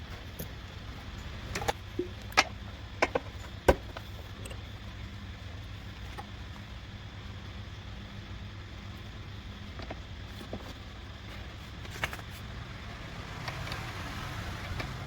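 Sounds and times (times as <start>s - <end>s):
steady low hum: 0.0s - 15.0s
tools and parts clicking and knocking: 1.2s - 4.7s.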